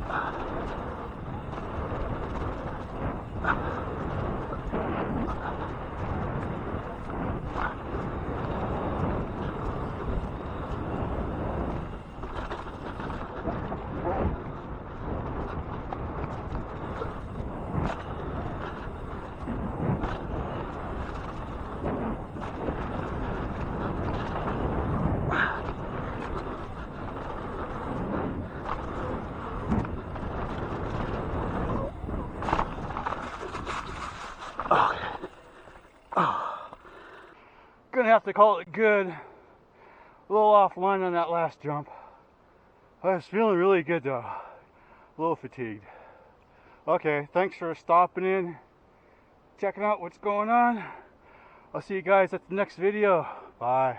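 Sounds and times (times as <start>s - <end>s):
wind rushing over microphone: 0.0s - 37.4s
bike tyres rolling on dirt: 0.0s - 42.2s, 43.1s - 53.9s.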